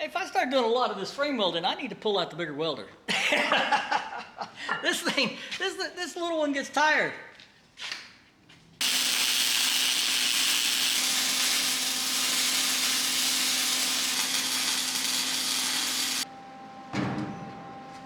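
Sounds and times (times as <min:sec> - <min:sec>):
welding arc sizzling: 0:08.8 - 0:16.3.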